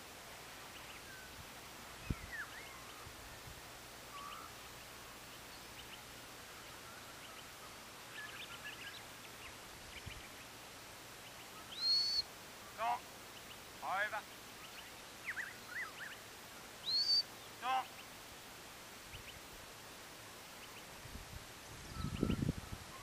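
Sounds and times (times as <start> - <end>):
whistled bird glides: 11.6 - 12.3, 16.8 - 17.3.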